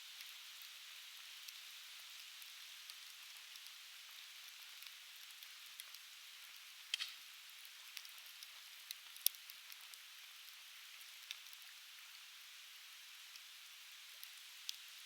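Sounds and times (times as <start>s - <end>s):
campfire crackling and popping: 4.8s - 11.7s.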